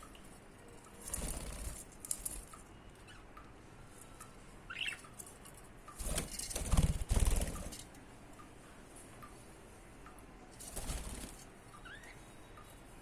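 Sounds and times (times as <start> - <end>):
wings flapping in rapid flutters: 1.0 - 2.4, 6.0 - 7.9, 10.6 - 11.5
bird chirp: 2.6 - 3.4, 4.2 - 5.4, 11.6 - 12.9.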